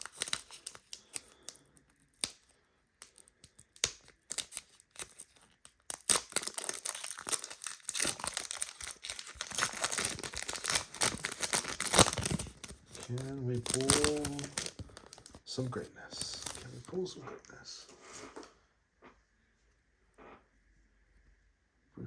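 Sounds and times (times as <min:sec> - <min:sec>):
card pack wrapper crinkling: 0:00.0 - 0:16.9.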